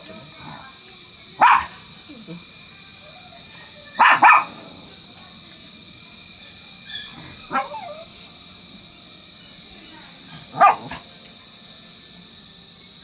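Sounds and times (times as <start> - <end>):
dog barking: 0.1 - 2.4, 3.5 - 5.1, 6.8 - 8.3, 10.0 - 11.2.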